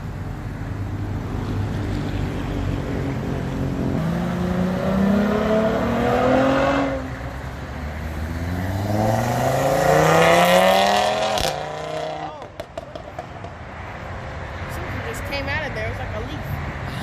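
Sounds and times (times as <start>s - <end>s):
car engine accelerating hard: 3.8s - 12.9s.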